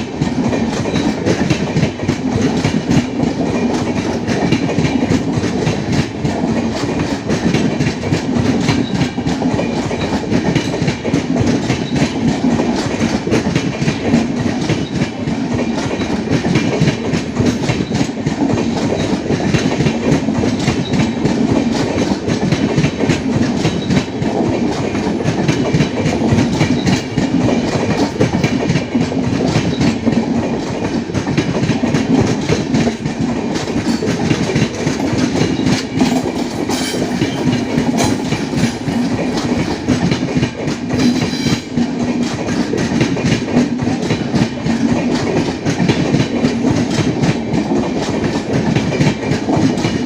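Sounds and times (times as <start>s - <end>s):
train wheels clattering on rails: 0.0s - 50.0s.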